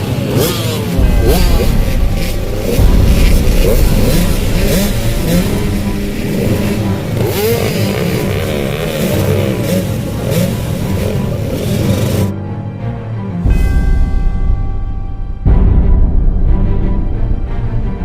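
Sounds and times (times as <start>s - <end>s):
dirt bike engines revving: 0.0s - 12.3s.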